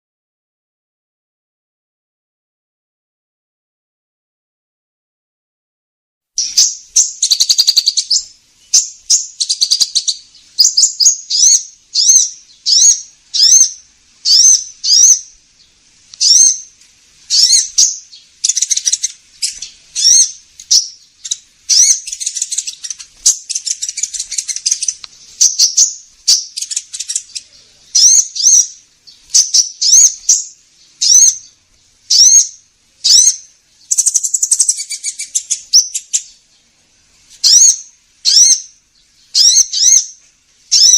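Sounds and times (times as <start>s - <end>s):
rapid bird chattering: 6.4s - 15.3s, 16.2s - 16.7s, 17.3s - 36.4s, 37.4s - 38.7s, 39.3s - 40.9s
high upswept bird chirps: 6.4s - 36.7s, 37.4s - 40.9s.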